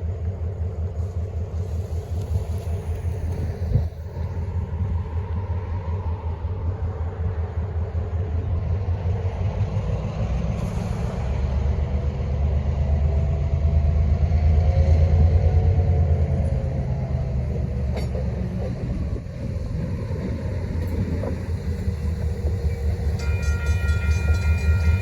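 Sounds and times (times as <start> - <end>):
vehicle rumble: 0.0 - 25.0
faint wavering tones: 22.4 - 25.0.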